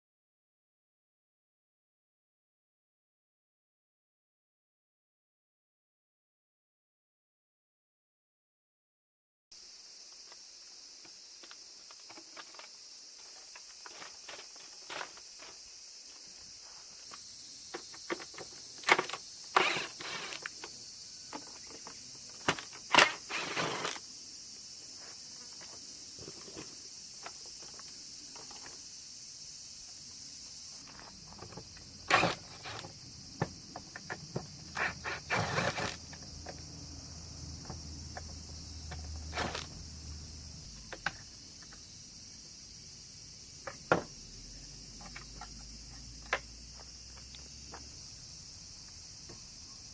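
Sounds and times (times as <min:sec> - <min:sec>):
high-pitched hiss: 0:09.6 - 0:49.9.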